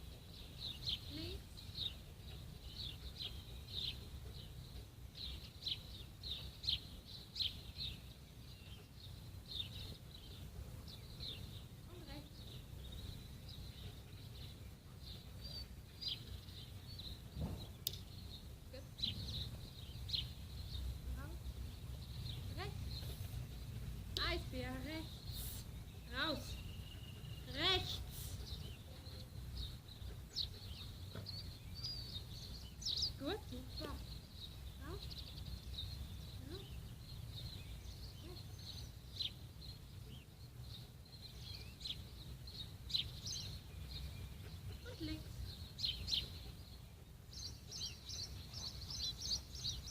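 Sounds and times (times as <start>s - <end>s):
small birds chirping: 0.0s - 49.9s
sharp click: 17.8s - 18.0s.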